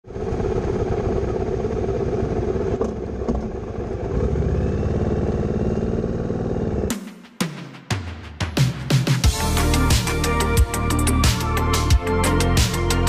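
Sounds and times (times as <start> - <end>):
second steady engine note: 0.0 - 6.9
motorcycle engine running: 0.0 - 7.1.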